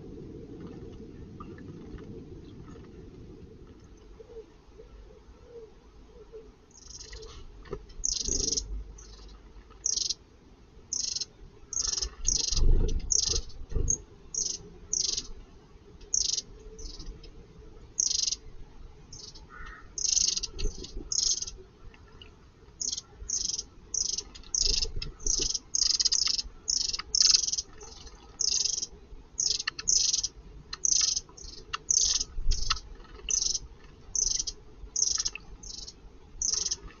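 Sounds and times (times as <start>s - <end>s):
low rumbles: 0.0s - 4.8s
small birds chirping: 6.7s - 10.2s, 10.9s - 15.4s, 16.0s - 18.5s, 19.1s - 36.9s.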